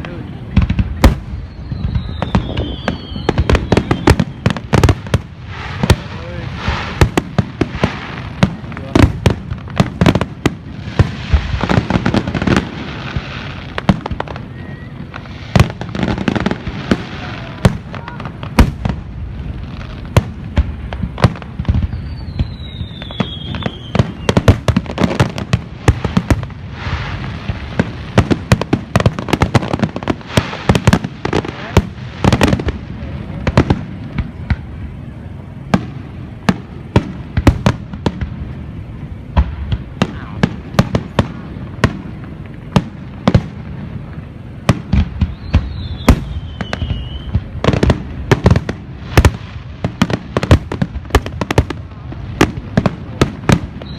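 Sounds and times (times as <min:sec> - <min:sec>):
fireworks bangs and crackles: 0:00.0 - 0:53.9
firework whistle sliding down: 0:01.3 - 0:04.6, 0:21.8 - 0:24.4, 0:45.2 - 0:47.4.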